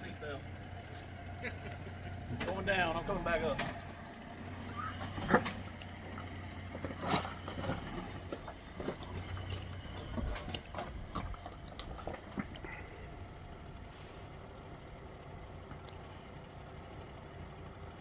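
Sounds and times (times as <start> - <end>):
vehicle engine idling: 0.0 - 18.0
knocks and scrapes: 4.4 - 12.5.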